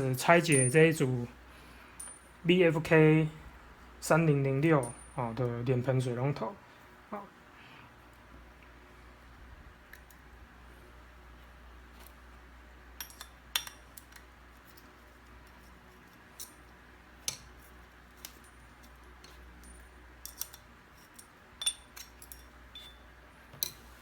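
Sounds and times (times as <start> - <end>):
metal faucet parts clinking: 0.4 - 1.0, 13.0 - 14.2, 19.2 - 23.8.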